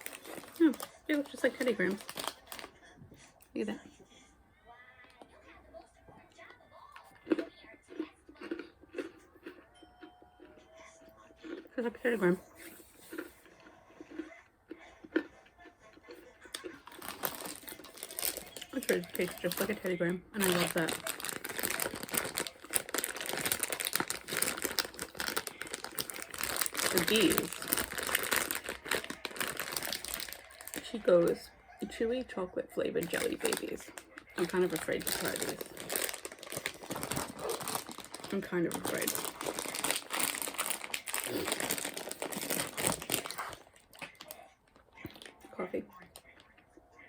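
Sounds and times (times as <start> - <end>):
plastic packaging crinkling: 0.0 - 2.7, 16.5 - 31.4, 33.0 - 45.3.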